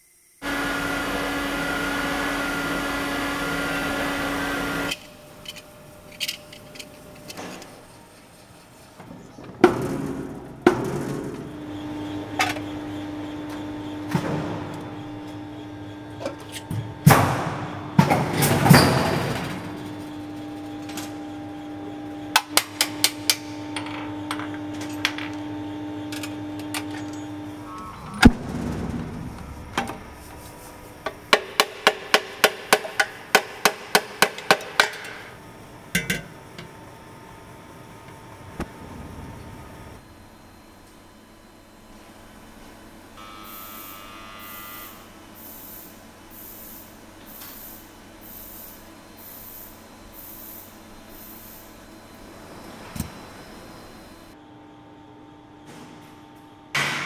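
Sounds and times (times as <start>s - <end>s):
steady machine hum: 0.0s - 47.2s, 47.8s - 57.0s
hammers striking silver: 31.0s - 35.3s.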